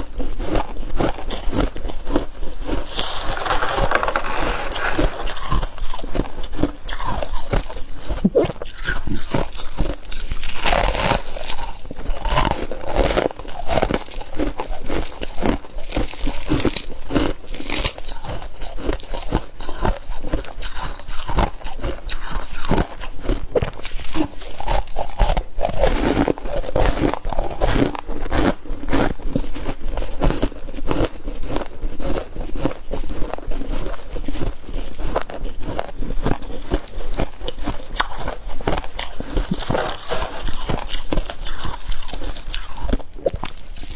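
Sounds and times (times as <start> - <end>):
crunching and chewing frost: 0.0 - 43.9.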